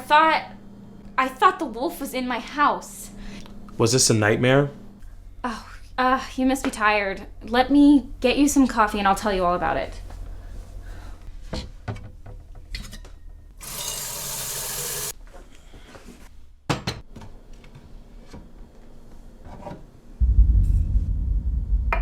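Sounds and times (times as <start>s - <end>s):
loud low rumble: 20.2s - 22.0s.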